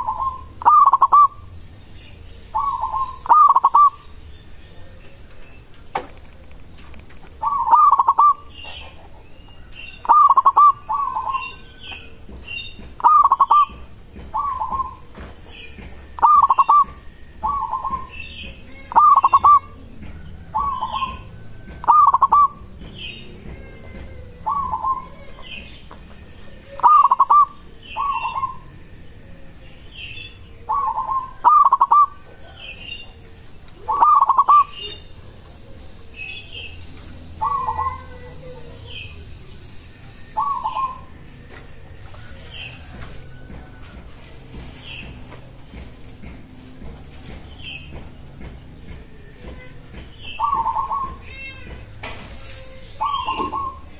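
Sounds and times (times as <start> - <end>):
dove cooing: 0.0 - 1.5, 2.5 - 4.1, 7.3 - 12.2, 13.0 - 15.2, 16.2 - 22.8, 23.5 - 25.8, 26.7 - 28.7, 30.6 - 39.2, 40.4 - 41.1, 50.3 - 51.2, 53.0 - 53.9
faint high chirps: 24.2 - 44.0.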